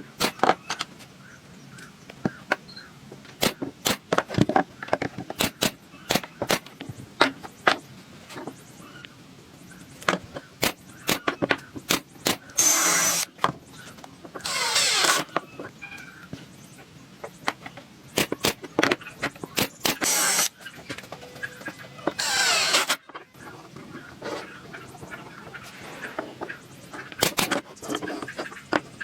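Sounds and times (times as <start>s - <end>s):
power tool bursts: 12.2s - 13.3s, 14.4s - 15.3s, 19.6s - 20.5s, 22.2s - 23.0s.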